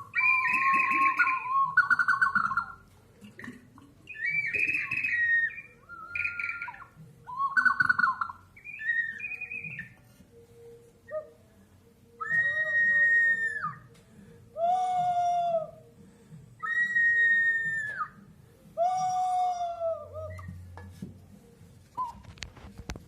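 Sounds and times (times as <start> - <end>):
ceramic whistling jar calls: 0.0 - 11.5, 12.1 - 14.0, 16.6 - 20.8, 21.9 - 22.8.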